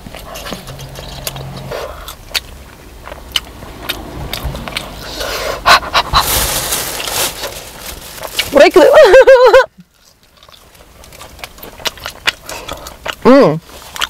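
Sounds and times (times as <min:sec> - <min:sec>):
person chewing food: 0:00.0 - 0:06.5, 0:08.2 - 0:08.5, 0:09.8 - 0:14.0.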